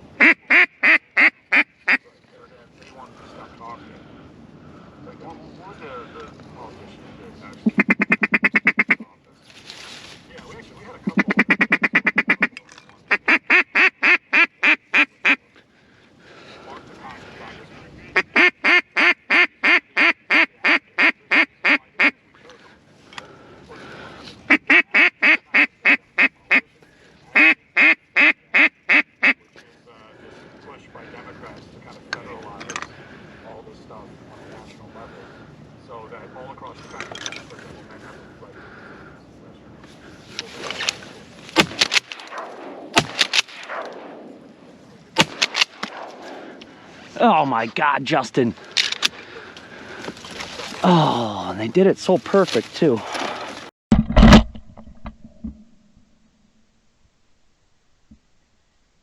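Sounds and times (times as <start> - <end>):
duck call quacks: 0.2 - 2.0, 7.6 - 9.0, 11.0 - 15.4, 18.0 - 22.2, 24.5 - 26.6, 27.3 - 29.4
shotgun shots: 41.6 - 44.4, 45.2 - 46.4.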